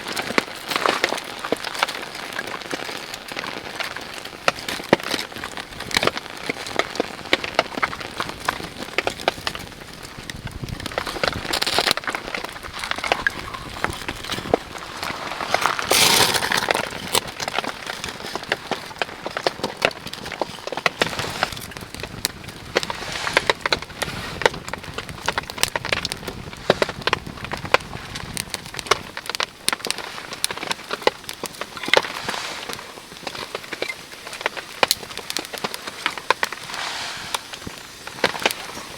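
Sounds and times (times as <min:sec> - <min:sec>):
raindrops tapping close by: 0:00.0 - 0:38.9
steady rain falling: 0:00.0 - 0:38.9
rush of noise: 0:36.5 - 0:38.8.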